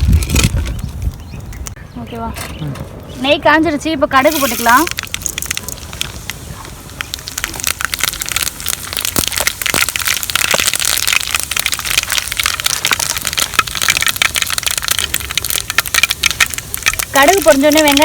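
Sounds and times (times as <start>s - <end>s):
seeds crackling in hot oil: 4.1s - 18.0s.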